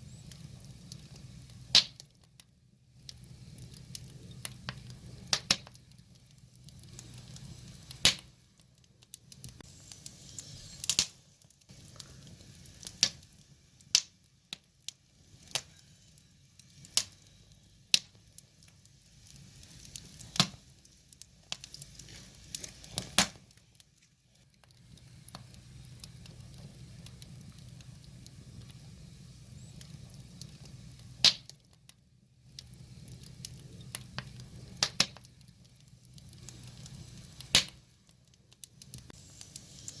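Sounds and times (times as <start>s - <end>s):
firewood crackling and popping: 0.0s - 40.0s.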